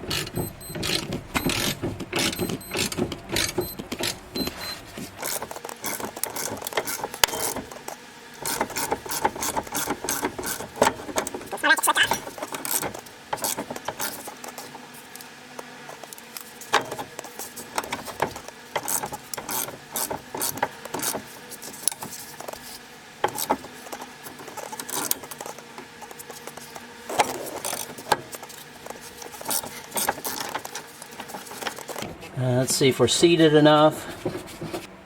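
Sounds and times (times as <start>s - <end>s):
hand ratchet clicking: 0.1s - 4.2s.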